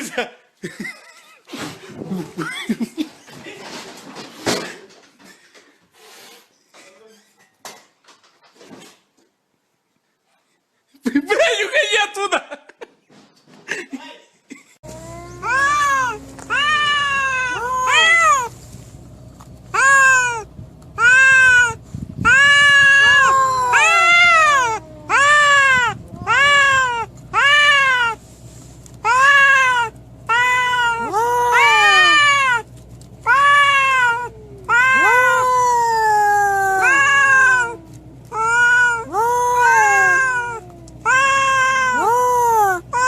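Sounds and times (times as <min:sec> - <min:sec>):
cat meowing loudly: 0:15.0 - 0:18.6, 0:19.7 - 0:28.2, 0:29.0 - 0:43.0.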